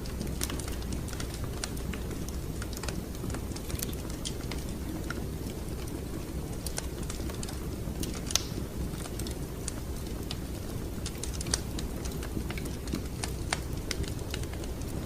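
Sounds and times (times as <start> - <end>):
low fire rumble: 0.0 - 15.0
wood fire crackling: 0.0 - 15.0.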